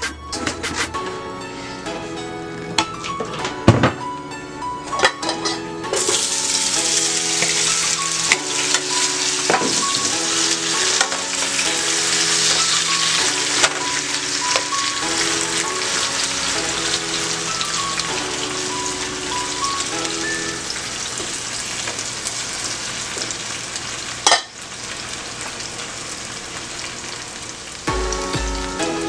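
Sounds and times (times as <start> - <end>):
food sizzling in hot oil: 5.1 - 28.3.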